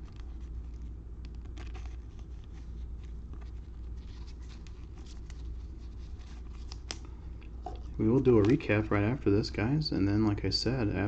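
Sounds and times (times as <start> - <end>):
cards flicked and rustled by hand: 0.0 - 7.1, 7.7 - 8.6
steady low hum: 0.0 - 11.0.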